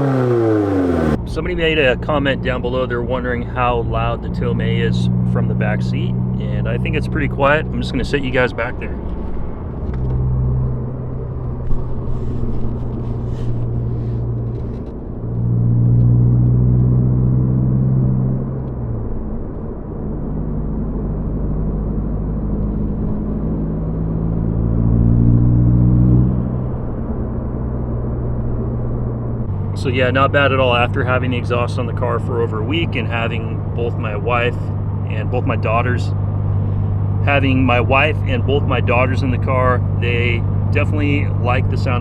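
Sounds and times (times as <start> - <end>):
car engine drone inside cabin: 0.0 - 42.0.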